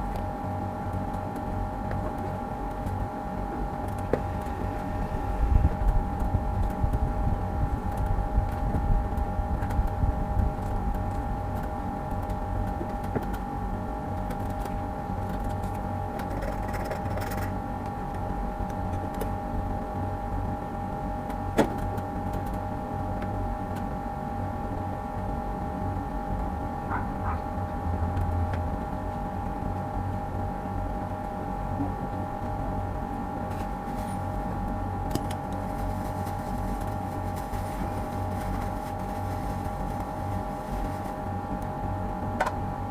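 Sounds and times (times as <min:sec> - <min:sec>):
machine humming: 0:00.0 - 0:16.4.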